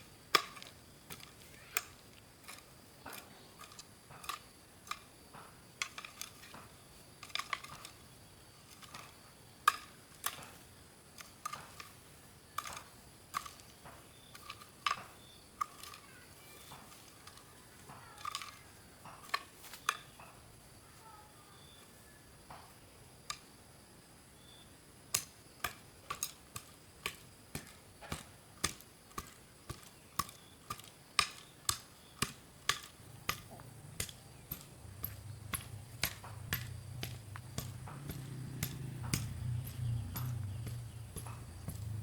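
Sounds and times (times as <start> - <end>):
sharp knocks: 27.0 - 42.0.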